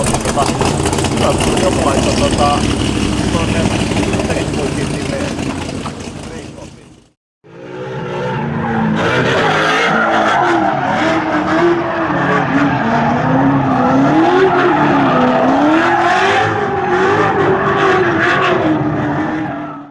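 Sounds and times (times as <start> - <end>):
tyres squealing: 0.0 - 7.0
engine revving high: 0.0 - 19.6.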